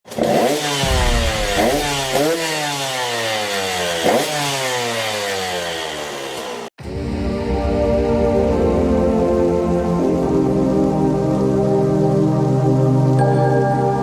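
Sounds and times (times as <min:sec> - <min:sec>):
dirt bike engine revving: 0:00.1 - 0:06.7.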